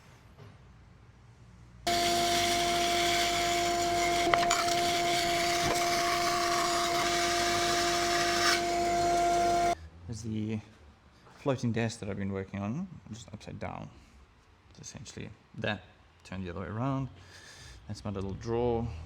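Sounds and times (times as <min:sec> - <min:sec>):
electric router cutting wood: 0:01.9 - 0:09.8.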